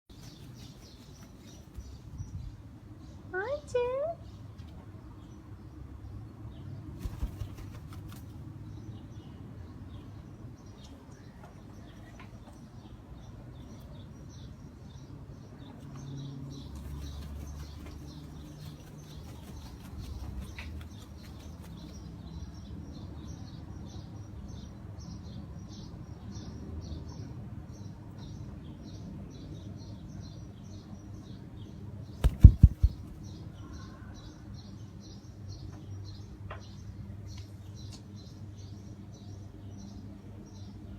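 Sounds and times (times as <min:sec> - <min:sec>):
wings flapping: 0:00.1 - 0:01.8, 0:07.0 - 0:08.5, 0:16.7 - 0:22.1, 0:32.2 - 0:33.3.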